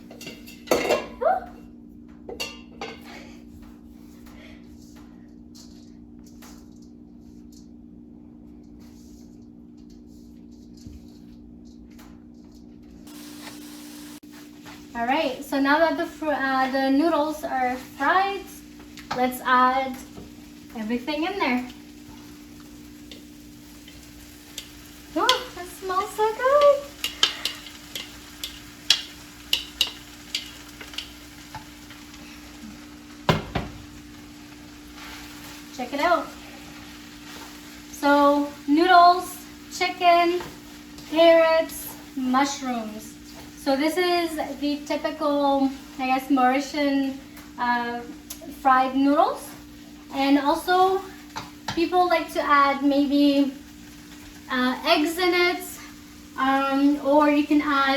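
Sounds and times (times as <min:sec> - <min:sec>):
noodles sizzling in a wok: 0:13.0 - 0:57.9
utensil scraping a wok: 0:21.5 - 0:32.8.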